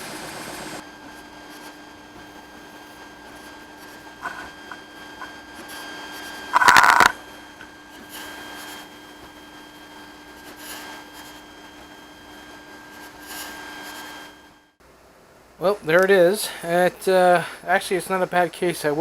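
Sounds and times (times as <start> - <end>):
printer motors whining: 0.8 - 11.9.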